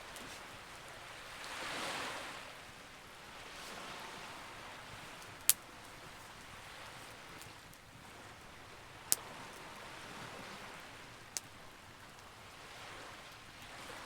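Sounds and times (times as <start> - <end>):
burning wood popping: 5.1 - 7.9.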